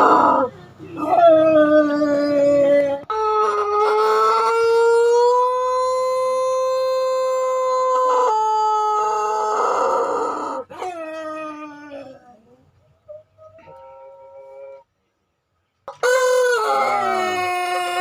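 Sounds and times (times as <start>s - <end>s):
rooster crowing: 0.0s - 11.3s, 15.9s - 18.0s.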